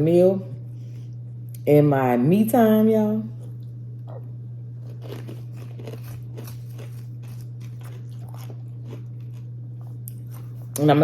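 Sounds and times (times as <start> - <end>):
steady low hum: 0.0 - 11.0
chewing crunchy chips: 3.4 - 10.8.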